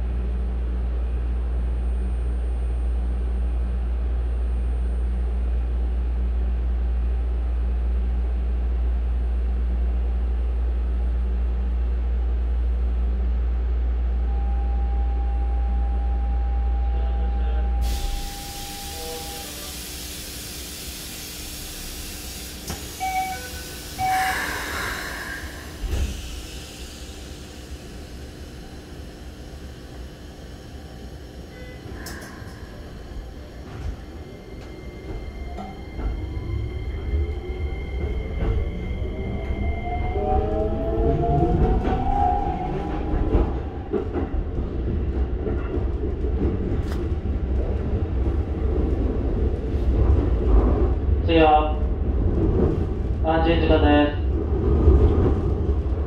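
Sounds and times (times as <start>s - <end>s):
train equipment low hum: 0.0s - 56.0s
air hissing: 17.8s - 28.2s.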